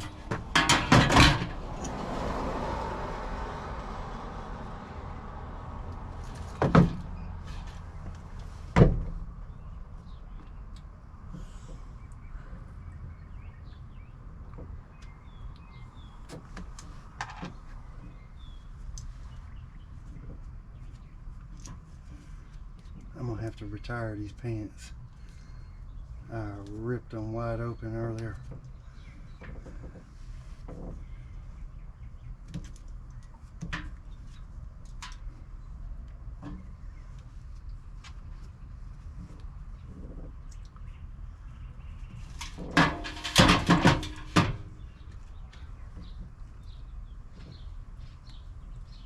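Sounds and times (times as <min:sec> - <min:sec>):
birds chirping: 0:09.4 - 0:30.1, 0:43.2 - 0:49.0.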